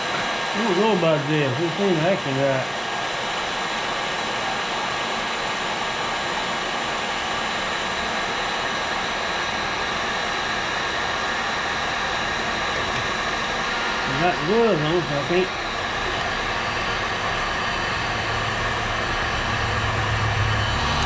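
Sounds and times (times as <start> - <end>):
faint steady whine: 0.0 - 21.0
heat gun blowing hiss: 12.6 - 17.4.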